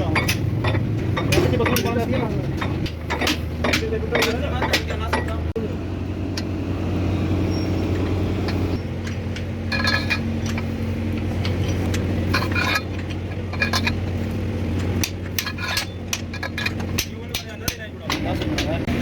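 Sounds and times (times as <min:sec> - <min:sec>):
low mechanical hum: 0:00.0 - 0:19.0
short metallic clinks: 0:07.4 - 0:14.1.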